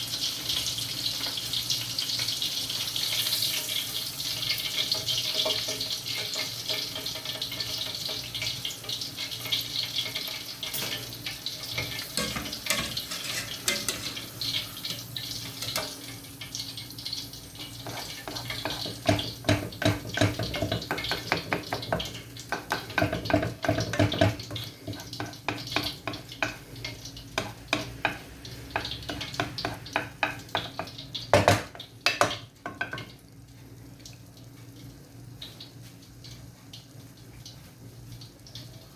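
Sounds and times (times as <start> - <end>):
utensil scraping a pot: 10.7 - 16.0, 17.6 - 26.6.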